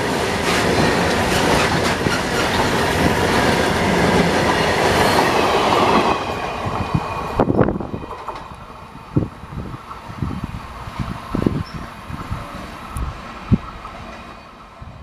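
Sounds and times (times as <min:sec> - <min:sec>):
freight train rumbling past: 0:00.0 - 0:15.0
train wheel clicks: 0:07.4 - 0:08.6.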